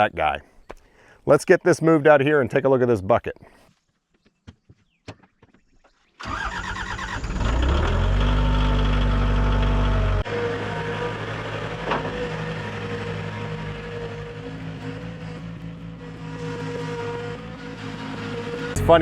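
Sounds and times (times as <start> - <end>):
heavy machine engine starting and running: 6.2 - 19.0.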